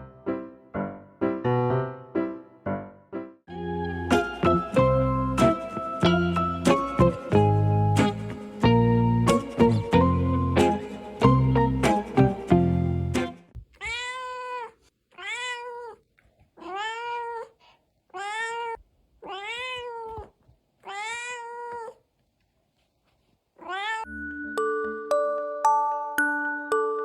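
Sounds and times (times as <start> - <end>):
background music: 0.0 - 13.5, 24.1 - 27.0
cat meowing: 13.7 - 22.1, 23.6 - 24.1.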